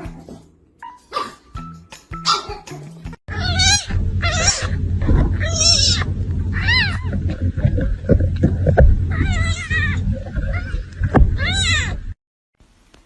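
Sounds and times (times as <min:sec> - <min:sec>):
animal calling: 0:03.3 - 0:07.4
steady low rumble: 0:03.3 - 0:12.2.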